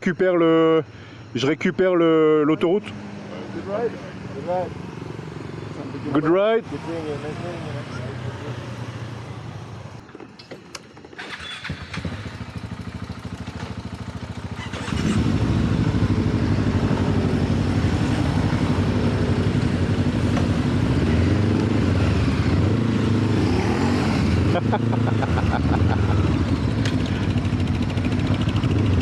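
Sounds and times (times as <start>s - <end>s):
motorcycle engine idling: 11.2s - 20.9s, 25.2s - 29.0s
quiet engine running: 11.2s - 23.4s, 24.4s - 29.0s.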